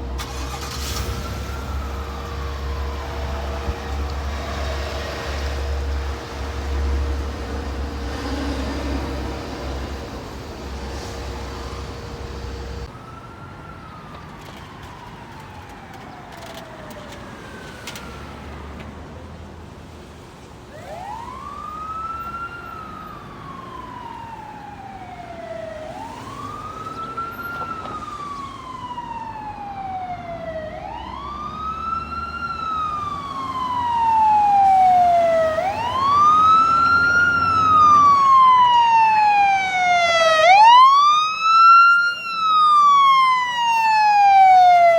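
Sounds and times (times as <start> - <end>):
fire truck siren wailing: 0.0 - 18.8, 20.7 - 44.9.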